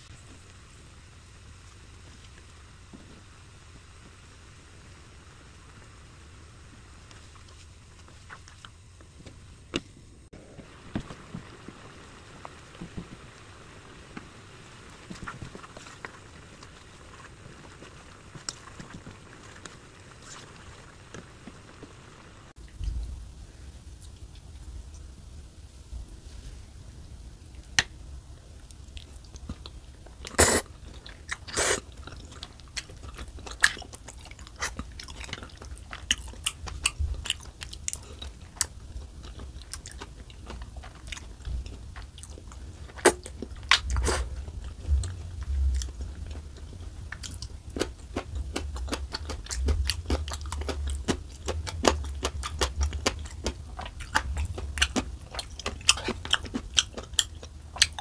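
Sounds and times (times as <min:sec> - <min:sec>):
wet chewing: 0:28.9 - 0:58.0.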